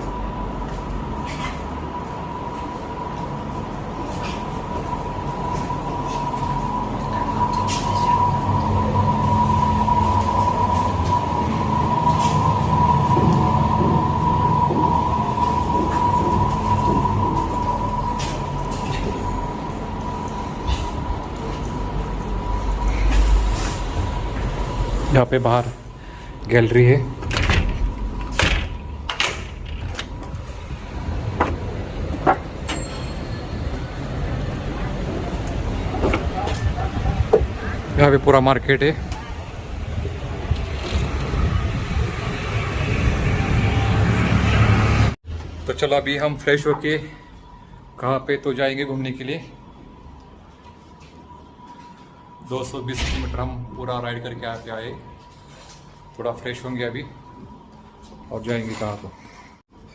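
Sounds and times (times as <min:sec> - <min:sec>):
mechanical hum with high whine: 0:00.0 - 0:59.9
street traffic rumble: 0:00.0 - 0:59.9
sliding door knocking and rattling: 0:27.2 - 0:30.2.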